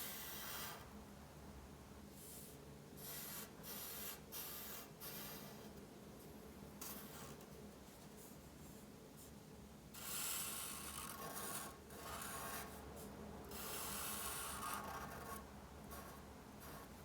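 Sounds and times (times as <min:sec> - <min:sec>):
drawing tool scribbling on paper: 0:10.0 - 0:12.8, 0:13.5 - 0:17.0.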